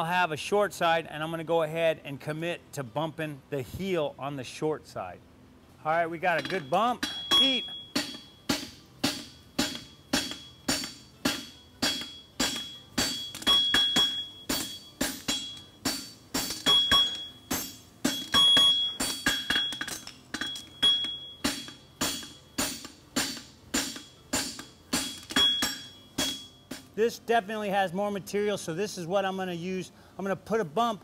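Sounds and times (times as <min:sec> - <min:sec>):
hammer striking steel on anvil: 0:06.2 - 0:27.0
high ringing anvil note: 0:06.3 - 0:27.0.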